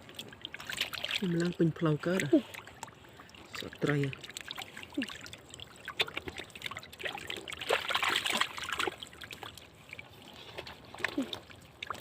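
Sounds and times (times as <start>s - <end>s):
shallow water splashing: 0.0s - 12.0s.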